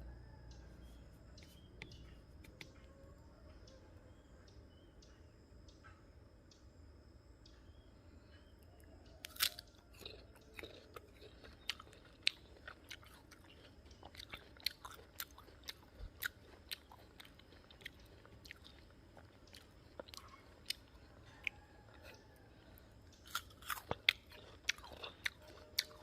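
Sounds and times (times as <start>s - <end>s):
crunchy chewing: 0.0s - 4.8s, 7.7s - 26.0s
bite into crisp fruit: 9.1s - 26.0s.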